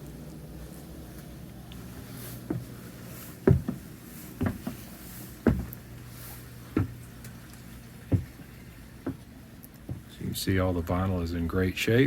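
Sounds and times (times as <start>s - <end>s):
steady low hum: 0.0s - 12.0s
short dull thumps: 2.4s - 7.1s, 8.0s - 10.3s.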